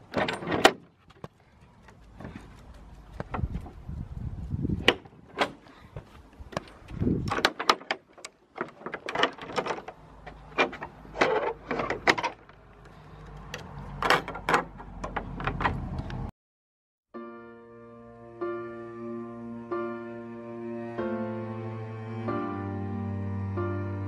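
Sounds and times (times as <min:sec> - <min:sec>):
gate and door knocks and rattles: 0:00.0 - 0:00.9, 0:07.2 - 0:12.5, 0:14.0 - 0:16.0.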